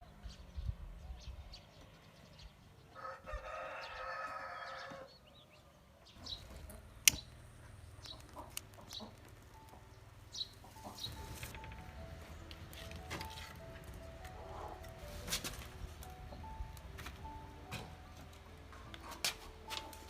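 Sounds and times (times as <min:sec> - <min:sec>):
rooster crowing: 0:02.9 - 0:05.1
small chirps and clicks: 0:06.3 - 0:11.9.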